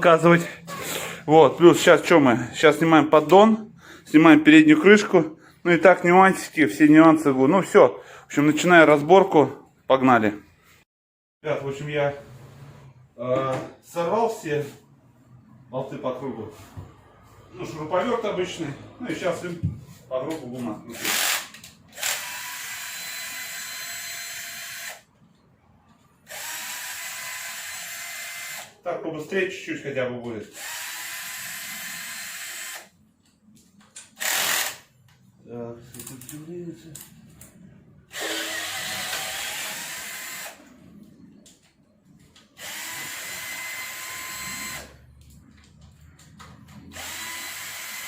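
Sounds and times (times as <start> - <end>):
cordless drill spinning bolts: 21.0 - 25.0, 34.2 - 34.8, 38.1 - 40.6, 46.9 - 48.0.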